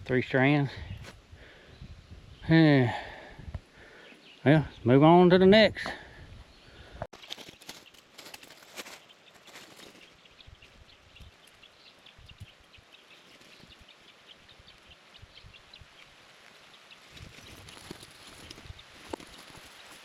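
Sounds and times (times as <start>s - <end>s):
small birds chirping: 0.1s - 20.0s
footsteps through leaf litter: 7.2s - 10.2s, 17.2s - 20.0s.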